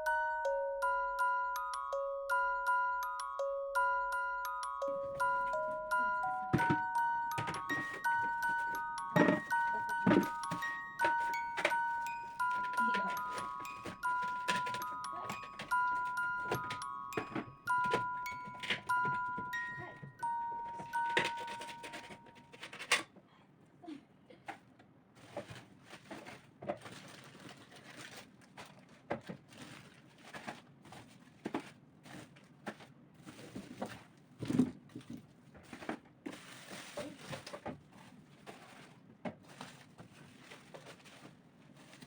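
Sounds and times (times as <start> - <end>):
short chime-like tune: 0.0 - 22.4
knocks and clicks: 4.4 - 22.8
rustling: 25.2 - 42.0.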